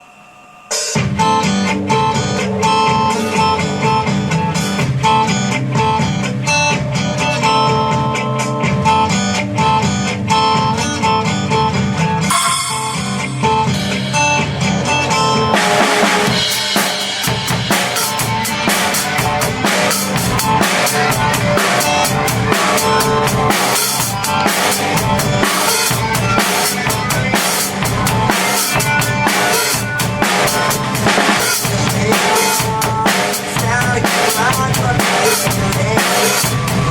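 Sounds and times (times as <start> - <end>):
cymbals crashing: 0.0 - 3.5, 12.3 - 36.9
drum kit playing: 0.0 - 36.9
rock backing track: 0.7 - 36.9.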